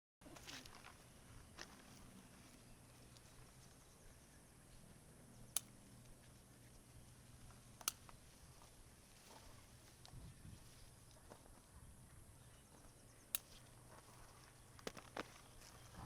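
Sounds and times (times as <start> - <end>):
sharp clicks: 5.4 - 6.1, 7.8 - 8.2, 13.1 - 13.8.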